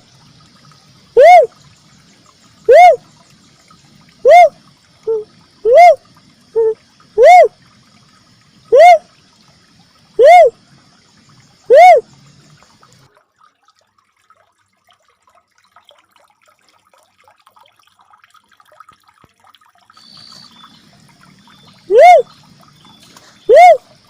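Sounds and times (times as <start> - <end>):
dove whooping call: 1.2 - 1.5, 2.7 - 3.0, 4.2 - 6.0, 6.6 - 7.5, 8.7 - 9.1, 10.2 - 10.6, 11.6 - 12.1, 21.7 - 22.4, 23.4 - 23.8.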